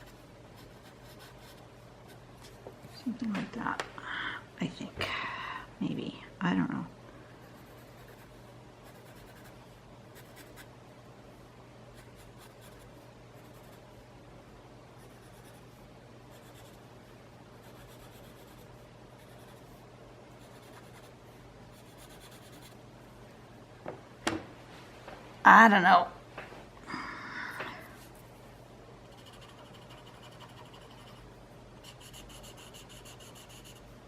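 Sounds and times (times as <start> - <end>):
pencil scratching on paper: 0.0 - 2.2, 7.4 - 9.6, 10.2 - 10.7, 12.0 - 13.8, 15.0 - 16.8, 17.6 - 19.8, 20.4 - 22.8, 29.1 - 31.2, 31.8 - 33.9
steady low hum: 0.0 - 34.0.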